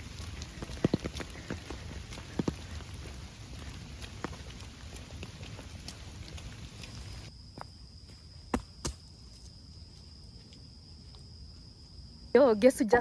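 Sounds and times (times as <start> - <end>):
light rain hissing: 0.0 - 7.3
steady high insect-like tone: 2.8 - 13.0.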